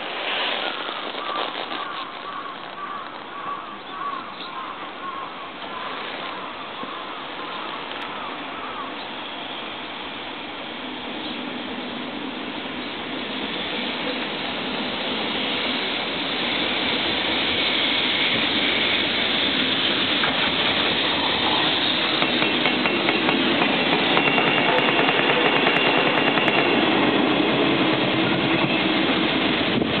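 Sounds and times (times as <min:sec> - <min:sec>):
locomotive wheels rushing on rail: 0:00.0 - 0:03.5, 0:05.6 - 0:30.0
wheels clicking over rail joints: 0:20.2 - 0:26.9.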